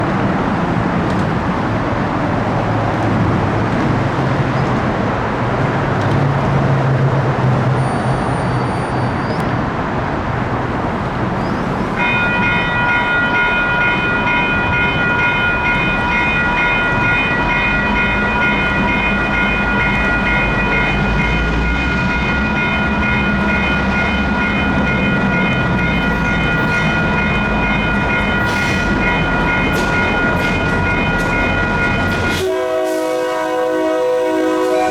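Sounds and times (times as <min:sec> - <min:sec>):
diesel locomotive rumble: 0:00.0 - 0:34.9
railroad crossing bells ringing: 0:11.8 - 0:34.9.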